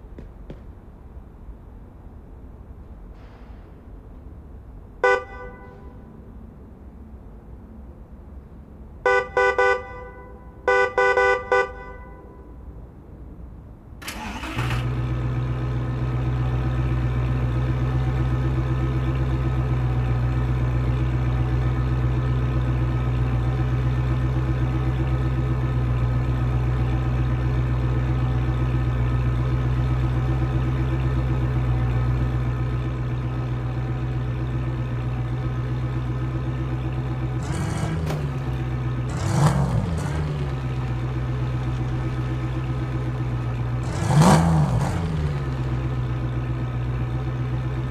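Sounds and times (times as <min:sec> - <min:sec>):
car engine idling: 0:14.1 - 0:47.9
car engine revving: 0:36.8 - 0:47.9.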